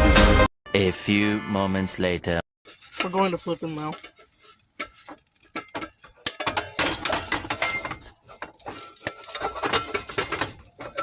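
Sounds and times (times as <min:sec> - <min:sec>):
scraping in pot: 0:02.6 - 0:11.0
metal utensil clattering in pot: 0:02.7 - 0:11.0.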